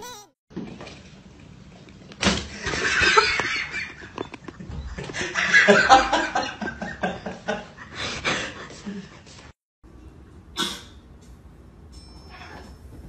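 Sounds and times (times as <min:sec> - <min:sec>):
person laughing hard: 0:02.6 - 0:09.1.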